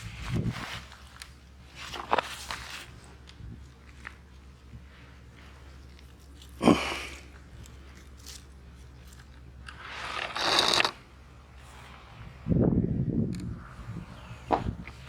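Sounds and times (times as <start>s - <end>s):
crunching rustle: 0.0s - 12.2s
sharp crunch: 6.1s - 11.1s.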